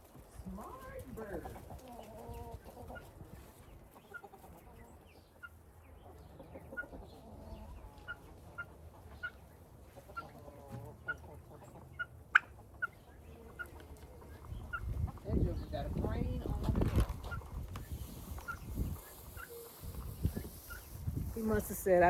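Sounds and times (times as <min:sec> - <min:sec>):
chickens clucking: 0:00.0 - 0:22.0
short high chicken calls: 0:18.3 - 0:21.0.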